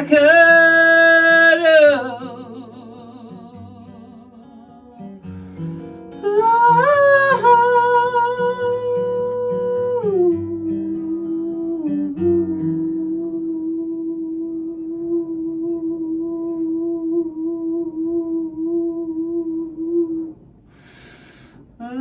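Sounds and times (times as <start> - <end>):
acoustic guitar chords: 0.0 - 22.0
person humming: 6.2 - 22.0.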